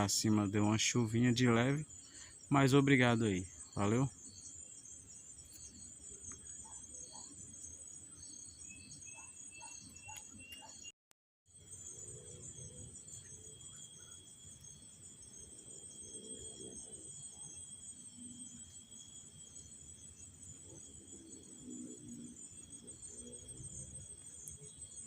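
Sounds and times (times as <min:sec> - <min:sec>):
crickets chirring: 0:00.0 - 0:10.9, 0:11.5 - 0:25.0.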